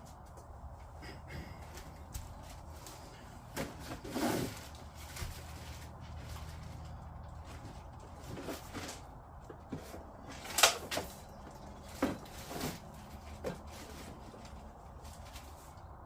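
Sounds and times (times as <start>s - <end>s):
hard plastic parts clacking: 7.6s - 14.7s.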